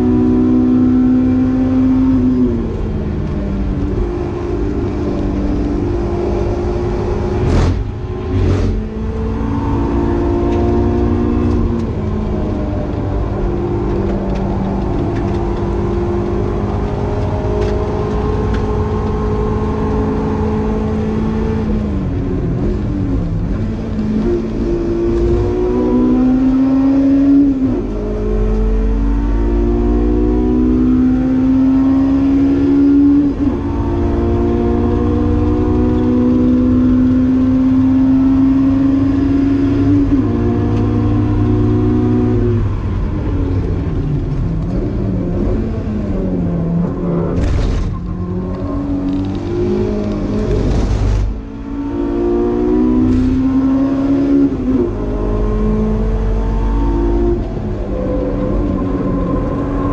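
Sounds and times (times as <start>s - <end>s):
car engine accelerating: 0.0s - 59.9s
short rushing noise: 50.3s - 51.4s.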